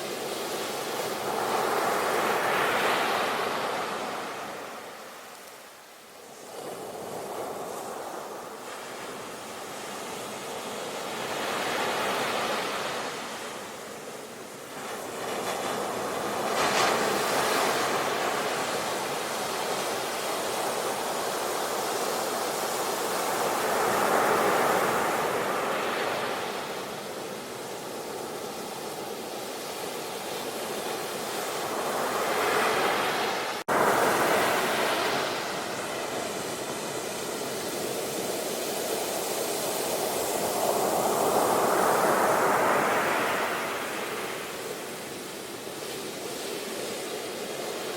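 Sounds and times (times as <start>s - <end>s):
ocean surf breaking: 14.6s - 47.9s.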